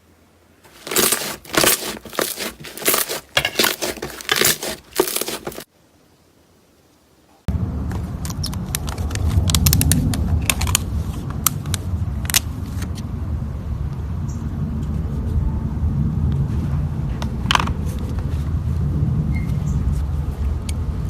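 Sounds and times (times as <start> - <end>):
low steady rumble: 7.5 - 21.0
sharp clicks and pops: 7.9 - 12.5.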